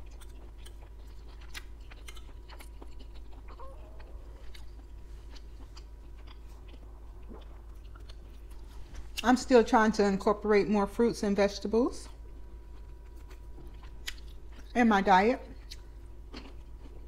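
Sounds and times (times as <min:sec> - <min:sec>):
food crunches: 0:00.0 - 0:08.7, 0:12.7 - 0:14.8, 0:15.5 - 0:17.0
close chewing: 0:00.0 - 0:09.2, 0:12.7 - 0:14.7, 0:15.6 - 0:17.0.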